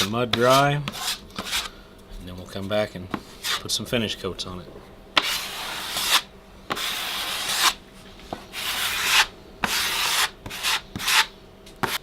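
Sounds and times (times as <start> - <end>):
drywall knife scraping: 0.0 - 1.7, 3.1 - 3.7, 5.2 - 7.8, 8.5 - 12.0.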